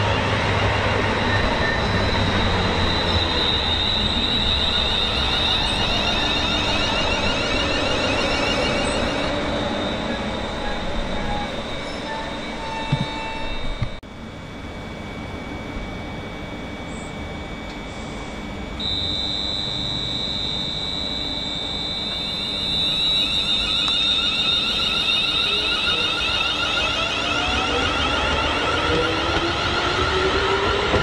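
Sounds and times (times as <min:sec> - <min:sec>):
high-pitched train whine: 0:00.0 - 0:31.0
train running sound: 0:00.0 - 0:31.0.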